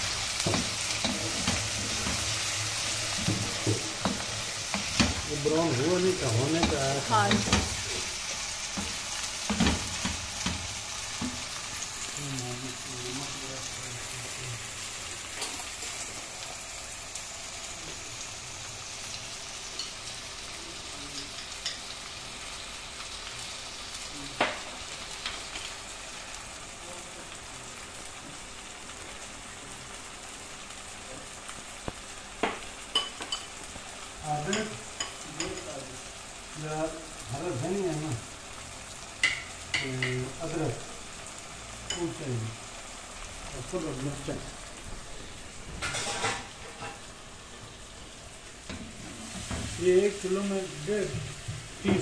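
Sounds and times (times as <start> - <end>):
wooden spatula stirring: 0.0 - 11.6
chicken and onions sizzling in a pan: 0.0 - 52.0.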